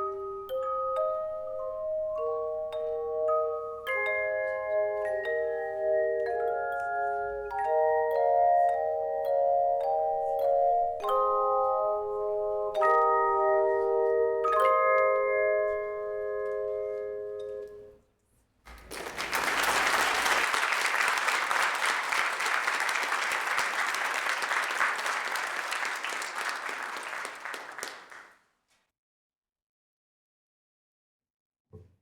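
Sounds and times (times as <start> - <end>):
congregation applauding: 18.7 - 28.3.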